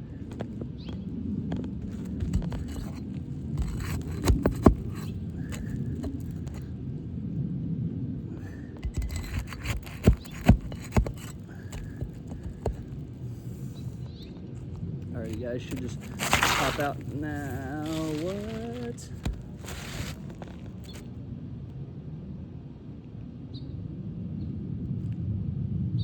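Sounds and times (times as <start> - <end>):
crowbar scraping under shingles: 0.0 - 6.7, 8.4 - 21.1.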